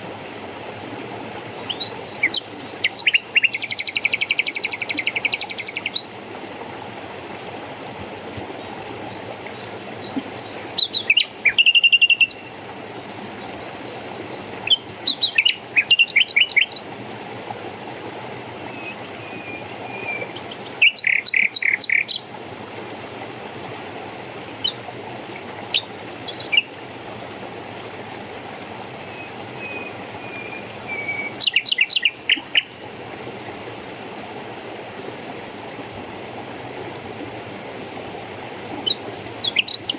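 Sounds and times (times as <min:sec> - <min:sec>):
running water: 0:00.0 - 0:39.9
songbird chirping and trilling: 0:01.7 - 0:06.1, 0:10.3 - 0:12.5, 0:14.1 - 0:16.8, 0:18.7 - 0:22.3, 0:29.2 - 0:32.8, 0:38.8 - 0:39.9.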